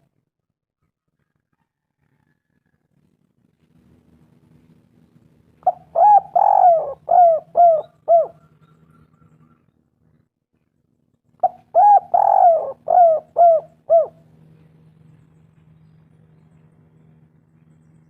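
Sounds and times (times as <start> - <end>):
dove cooing: 5.6 - 9.7, 11.4 - 14.3.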